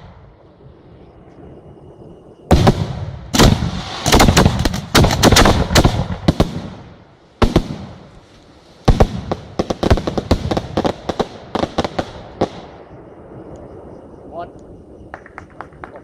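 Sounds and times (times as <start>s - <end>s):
fireworks booming: 2.4s - 8.2s, 8.8s - 16.0s
fireworks crackling: 2.5s - 16.0s.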